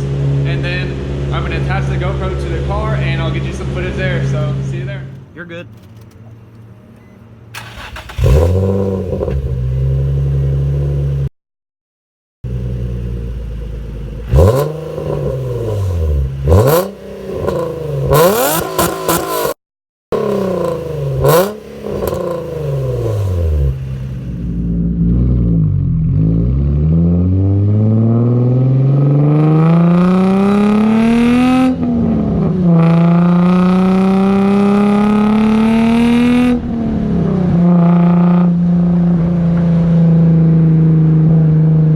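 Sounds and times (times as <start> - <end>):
raspy car engine revving: 7.6 - 11.3, 12.5 - 41.5.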